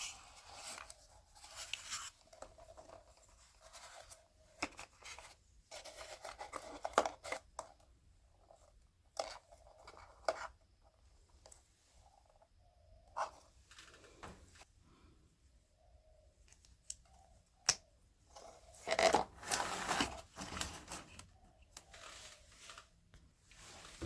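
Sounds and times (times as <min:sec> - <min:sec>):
cardboard scraping and crinkling: 0:18.8 - 0:21.3.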